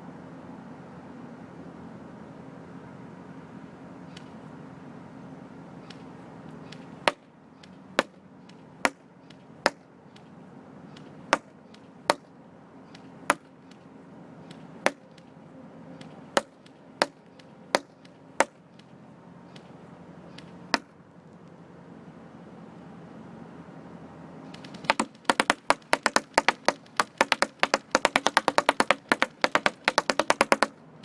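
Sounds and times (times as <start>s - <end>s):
pellets smacking a target box: 14.9s - 15.3s, 16.4s - 17.2s, 17.8s - 18.6s, 24.6s - 30.7s.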